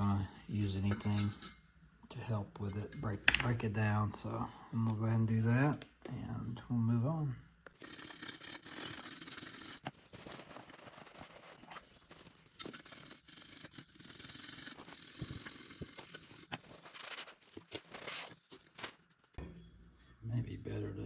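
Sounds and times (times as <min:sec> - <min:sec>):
bristle brush scrubbing metal: 0:00.0 - 0:01.6, 0:07.8 - 0:18.4.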